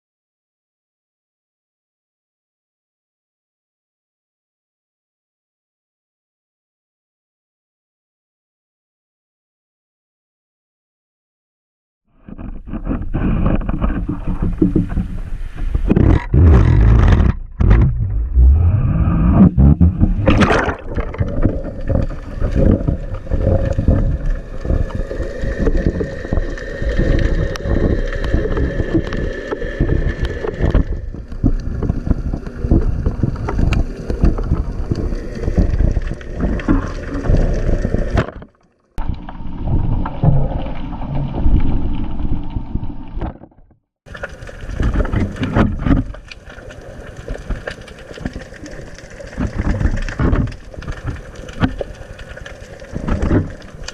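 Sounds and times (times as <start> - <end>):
dense crackles and clicks: 12.2 - 43.5, 44.1 - 53.9
muffled churning water: 12.2 - 53.9.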